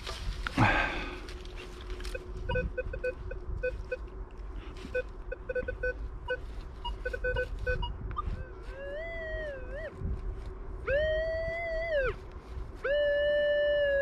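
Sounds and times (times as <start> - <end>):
faint steady hum: 0.0 - 14.0
metal detector beeps: 2.1 - 4.0, 4.9 - 9.9.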